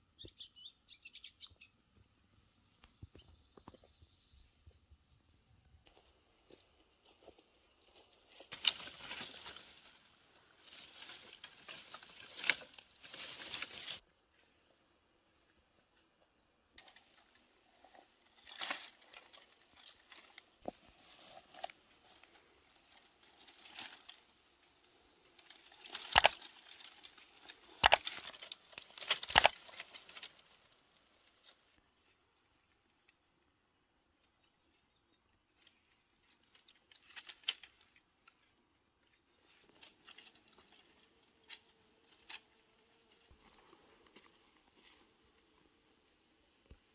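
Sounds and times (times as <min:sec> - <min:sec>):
rustling of dry sticks and brush: 0:05.9 - 0:14.9, 0:16.8 - 0:33.2, 0:35.4 - 0:46.9
sticks snapping: 0:25.4 - 0:30.5.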